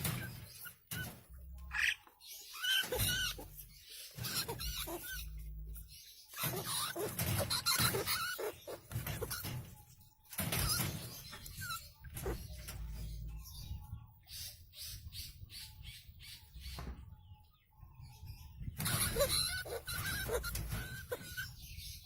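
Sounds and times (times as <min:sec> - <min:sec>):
rat squealing: 0:00.0 - 0:09.6, 0:10.6 - 0:12.7, 0:18.8 - 0:22.0
scratching and knocking: 0:06.4 - 0:13.2.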